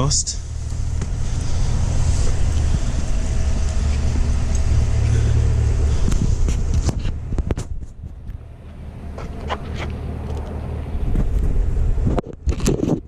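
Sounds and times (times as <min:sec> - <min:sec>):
exhaust idling rumble: 0:00.0 - 0:12.5.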